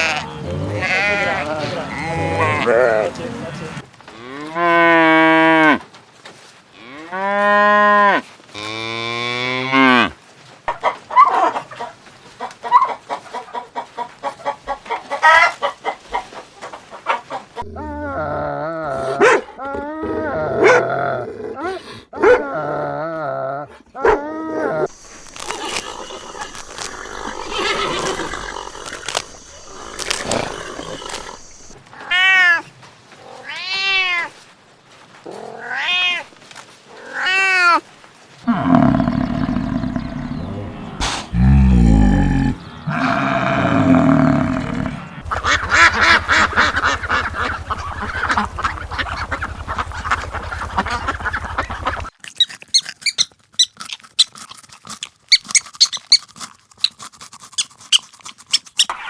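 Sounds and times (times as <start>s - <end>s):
rising-and-falling animal cries: 0.0s - 3.1s, 38.5s - 52.0s
heavy low animal sounds: 0.0s - 3.4s, 24.9s - 31.8s, 38.4s - 52.1s.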